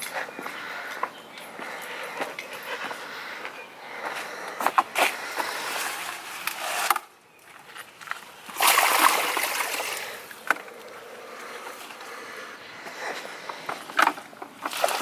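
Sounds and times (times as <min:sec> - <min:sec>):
water pouring and splashing: 0:05.5 - 0:07.0, 0:08.4 - 0:10.5, 0:14.6 - 0:15.0.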